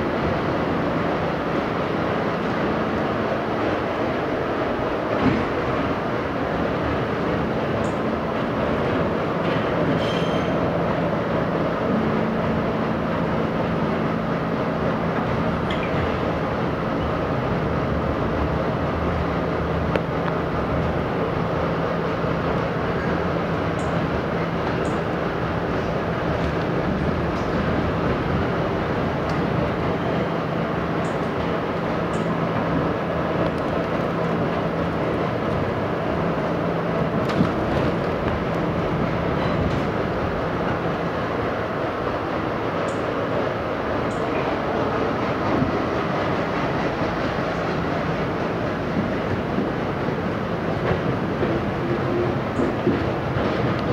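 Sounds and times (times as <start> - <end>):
subway wheels rumbling on rail: 0.0 - 53.9.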